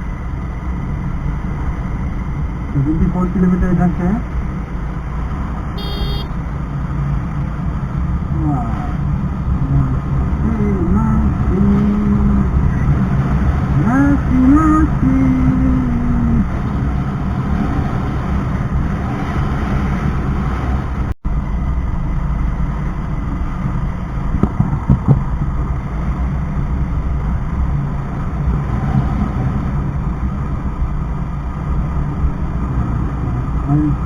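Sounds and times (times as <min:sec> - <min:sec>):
motorcycle running: 0:00.0 - 0:34.0
wind rumble on microphone: 0:06.6 - 0:34.0.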